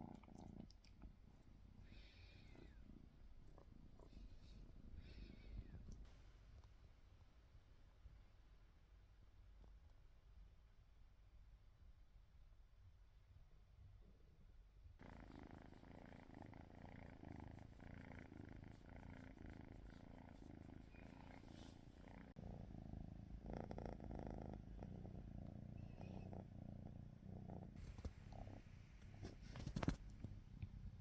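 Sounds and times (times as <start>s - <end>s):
kitten purring faintly: 0.0s - 6.1s, 15.0s - 31.0s.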